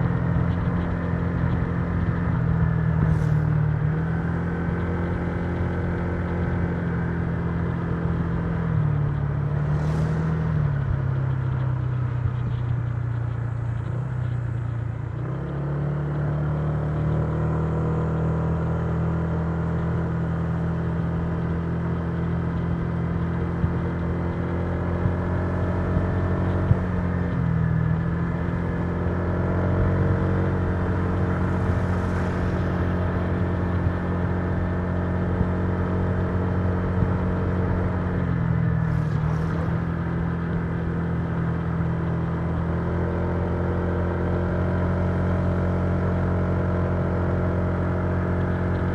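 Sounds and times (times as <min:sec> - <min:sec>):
scooter engine running: 0:28.3 - 0:42.8.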